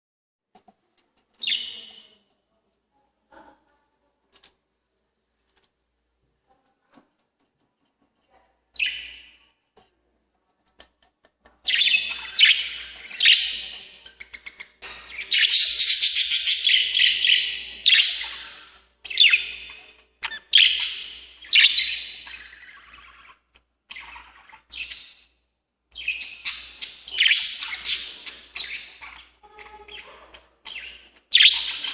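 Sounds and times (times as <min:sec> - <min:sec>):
lovebirds chattering calls: 0:26.0 - 0:31.9.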